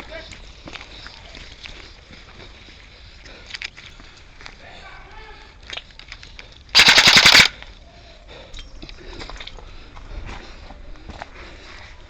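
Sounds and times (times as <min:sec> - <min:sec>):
airsoft gun burst: 0:06.8 - 0:07.6.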